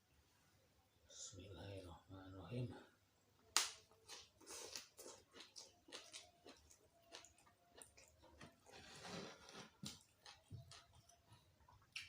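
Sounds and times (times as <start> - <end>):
wet mouth chewing: 4.0 - 8.7, 9.8 - 12.0.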